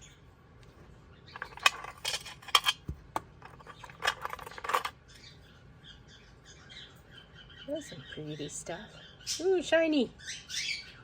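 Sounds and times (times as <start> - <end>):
stones clinking and clattering: 1.3 - 5.0.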